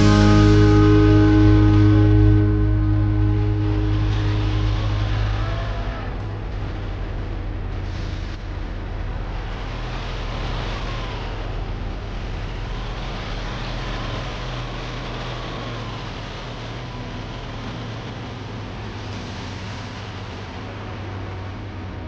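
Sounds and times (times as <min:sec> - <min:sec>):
faint wavering whine: 0:00.0 - 0:07.8
large engine droning: 0:00.0 - 0:22.0.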